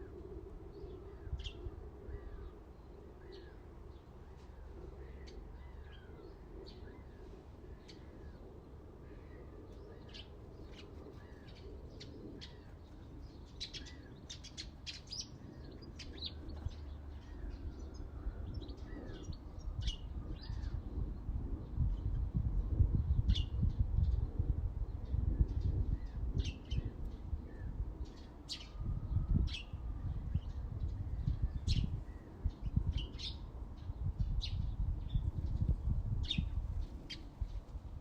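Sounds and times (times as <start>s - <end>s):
small birds chirping: 0.7s - 20.9s.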